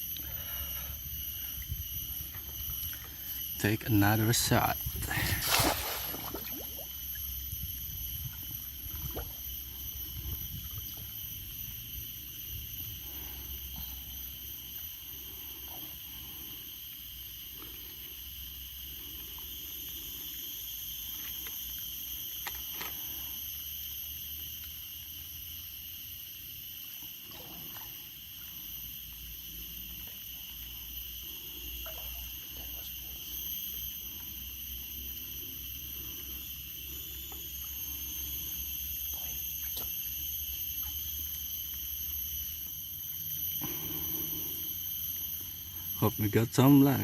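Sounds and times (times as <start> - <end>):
high-pitched insect chorus: 0.0 - 47.0.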